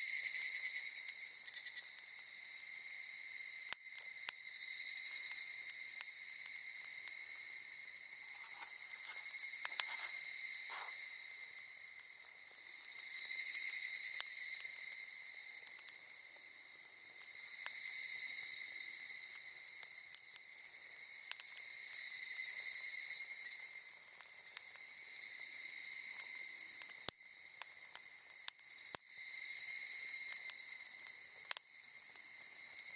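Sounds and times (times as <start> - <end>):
campfire crackling and popping: 0.9 - 2.8, 3.6 - 32.9
insects shrill drone: 4.4 - 12.0.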